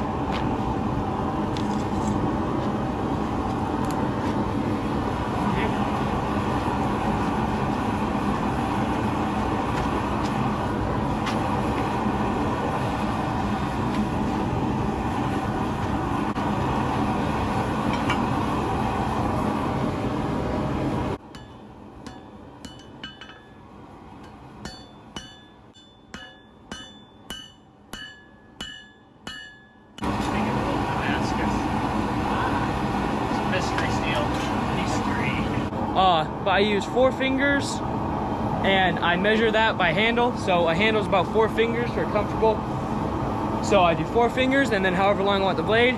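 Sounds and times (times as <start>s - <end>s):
loud steady roar: 0.0s - 45.9s
hammer striking steel on anvil: 21.3s - 30.1s.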